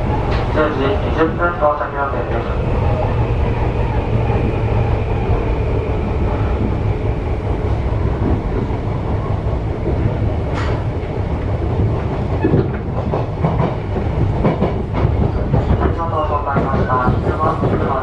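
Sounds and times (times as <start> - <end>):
train running gear rumble: 0.0 - 18.0
wheels clacking over rail joints: 8.1 - 18.0.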